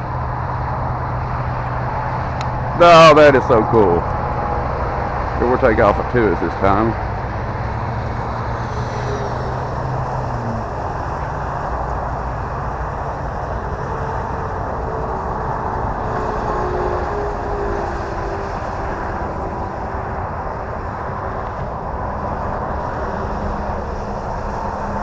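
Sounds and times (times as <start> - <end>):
outdoor rush of noise: 0.0 - 25.0
model plane motor and propeller: 5.3 - 25.0.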